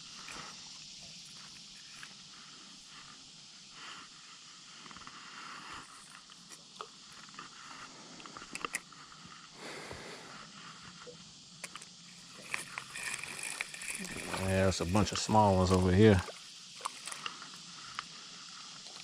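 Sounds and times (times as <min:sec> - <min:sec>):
faint outdoor hiss: 0:00.0 - 0:19.0
fishing gear clicks and scrapes: 0:11.6 - 0:17.4.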